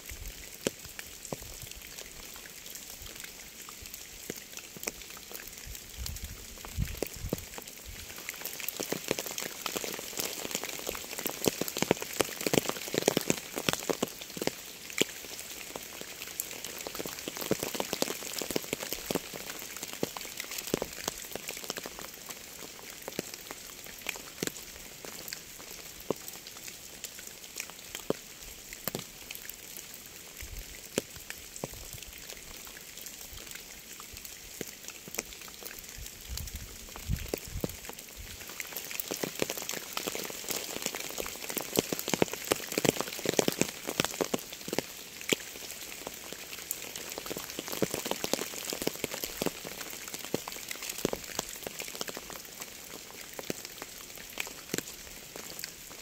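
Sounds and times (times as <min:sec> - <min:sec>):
rain hiss: 0:00.0 - 0:56.0
raindrops ticking: 0:00.3 - 0:56.0.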